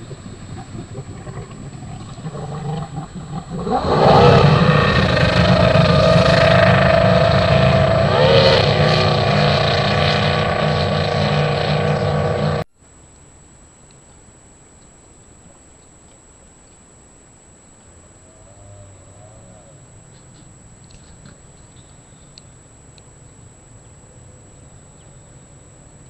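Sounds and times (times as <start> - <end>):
racing outboard engine revving: 0.0 - 12.7.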